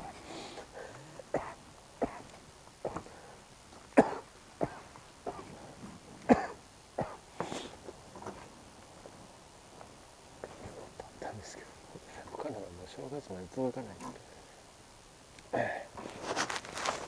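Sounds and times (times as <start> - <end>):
footsteps walking: 16.0 - 17.0.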